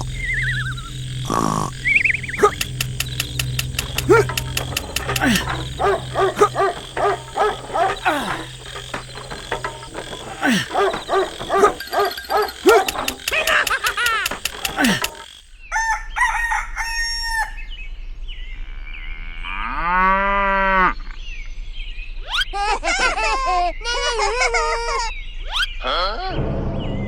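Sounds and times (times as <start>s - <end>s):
chickens clucking: 0.0s - 15.3s
rooster crowing: 2.4s - 17.6s.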